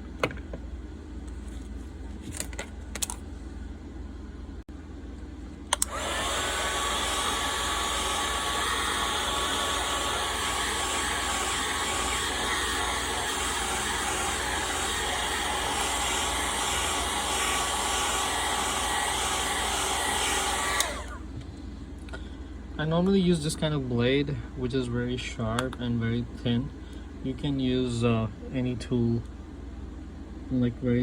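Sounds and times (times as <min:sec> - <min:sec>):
hot-air blower whirring hum: 0:02.9 - 0:31.0
hot-air blower switch click: 0:05.7 - 0:06.4, 0:20.6 - 0:21.1.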